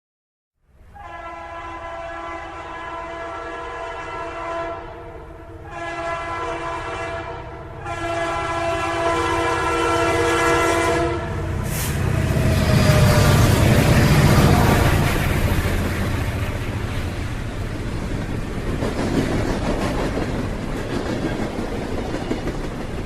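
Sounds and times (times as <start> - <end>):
train rumbling: 0.8 - 23.0
train horn blasts: 0.9 - 15.3.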